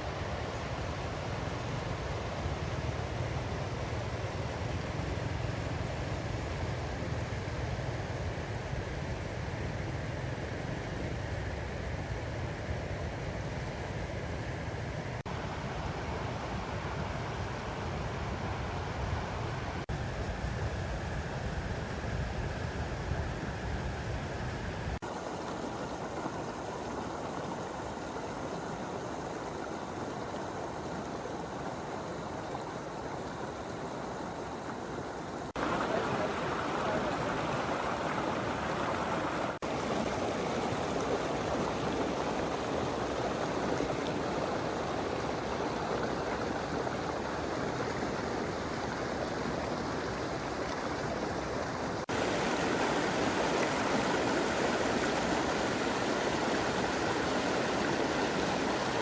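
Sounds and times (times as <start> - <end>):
water rushing over rapids: 24.9 - 59.0.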